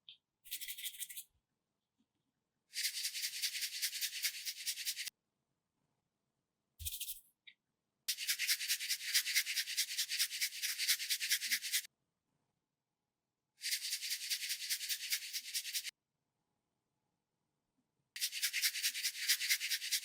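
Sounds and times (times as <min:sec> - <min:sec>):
rapid rhythmic rubbing strokes: 0:02.8 - 0:05.1, 0:08.1 - 0:11.9, 0:13.6 - 0:15.9.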